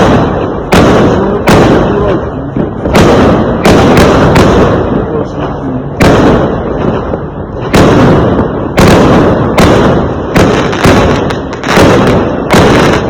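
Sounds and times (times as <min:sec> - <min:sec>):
fireworks exploding: 0:00.0 - 0:13.0.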